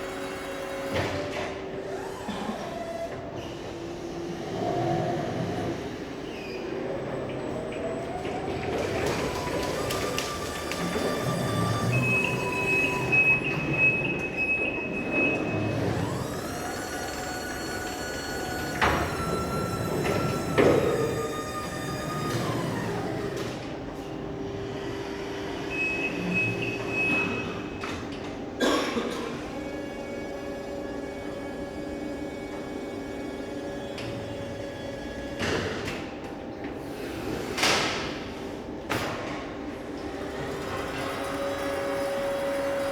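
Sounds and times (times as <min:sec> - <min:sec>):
electric truck motor whine: 0:03.1 - 0:26.6.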